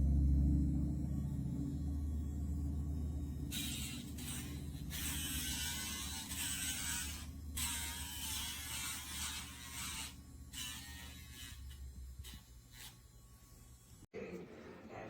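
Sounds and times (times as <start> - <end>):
nail grinder motor hum: 3.3 - 14.0.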